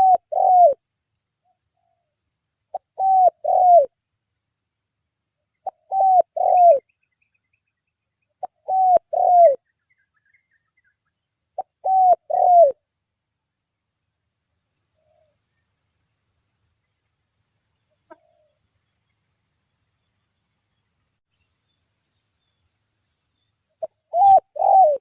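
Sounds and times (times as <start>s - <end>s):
dove cooing: 0.0s - 0.8s, 2.7s - 3.9s, 5.6s - 6.9s, 8.4s - 9.6s, 11.6s - 12.8s, 18.1s - 18.6s, 23.8s - 25.0s
small birds twittering: 5.6s - 12.8s.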